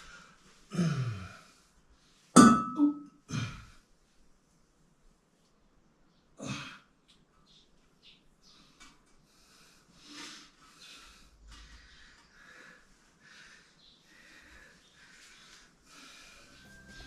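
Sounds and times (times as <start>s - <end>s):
person sighing and grunting: 0.7s - 1.4s.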